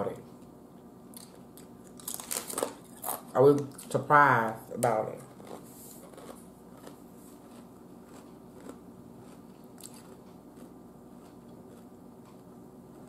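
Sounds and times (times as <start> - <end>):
person chewing food: 1.1 - 3.9, 5.2 - 13.0.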